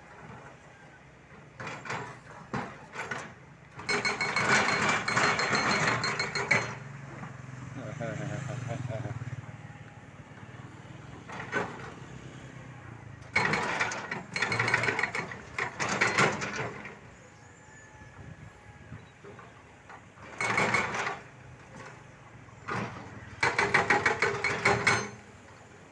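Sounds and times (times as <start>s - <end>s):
hydraulic breaker hammering: 3.8s - 6.9s, 13.3s - 17.0s, 20.3s - 21.9s, 22.7s - 25.4s.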